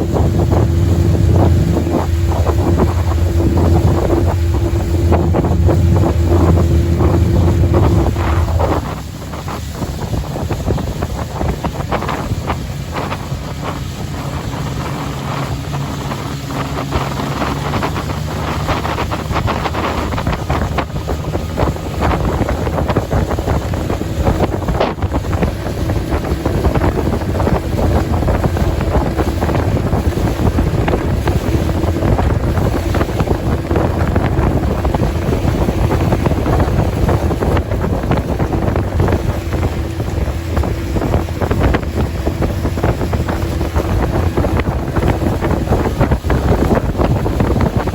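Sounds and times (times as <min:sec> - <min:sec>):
steady tone: 0:00.0 - 0:09.9
boat engine humming: 0:00.0 - 0:47.9
water noise: 0:00.0 - 0:47.9
wind on microphone: 0:00.0 - 0:47.9.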